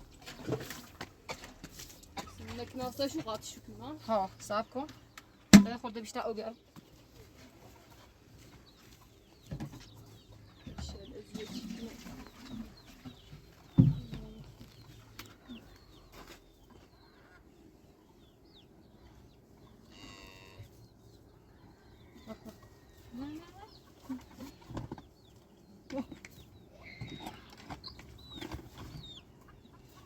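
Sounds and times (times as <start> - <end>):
poultry clucking: 7.0 - 30.0.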